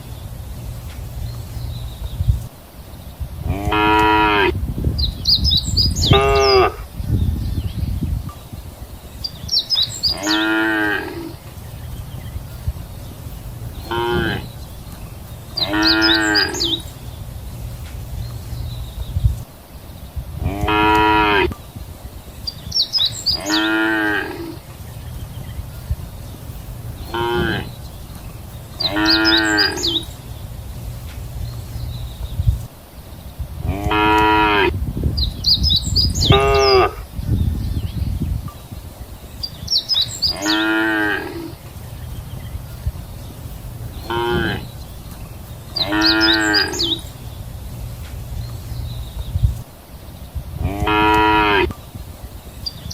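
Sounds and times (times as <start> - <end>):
cattle mooing: 10.1 - 11.4, 13.9 - 14.5, 15.6 - 16.8, 20.4 - 21.5, 23.4 - 24.6, 27.1 - 27.7, 28.8 - 30.0, 33.6 - 34.8, 36.3 - 37.0, 40.3 - 41.6, 44.1 - 44.7, 45.8 - 47.0, 50.6 - 51.7.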